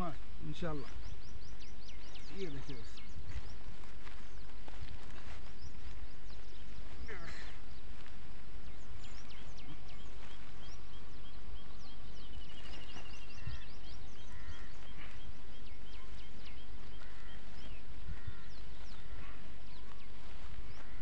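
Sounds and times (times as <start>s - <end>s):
outdoor background noise: 0.0s - 21.0s
small birds chirping: 0.0s - 21.0s
bird trill: 8.7s - 21.0s.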